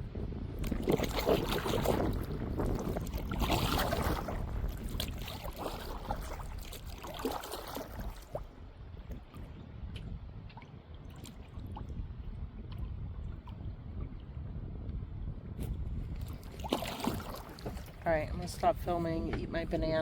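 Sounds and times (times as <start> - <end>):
water lapping around kayak: 0.0 - 20.0.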